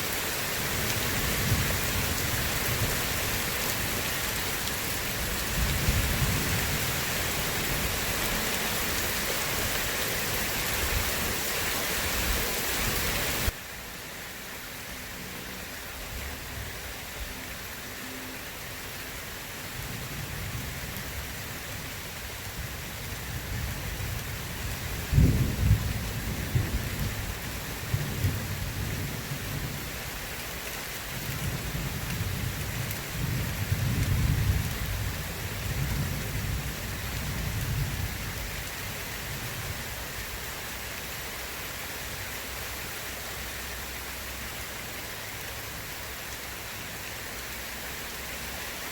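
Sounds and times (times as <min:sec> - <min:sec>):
heavy rain hissing: 0:00.0 - 0:48.9
low thunder rumbles: 0:00.6 - 0:09.0, 0:19.9 - 0:30.0, 0:31.1 - 0:39.9.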